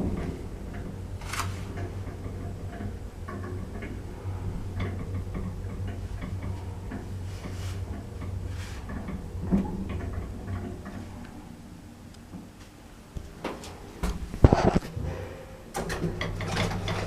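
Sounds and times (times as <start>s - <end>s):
lift humming: 0.0s - 14.3s.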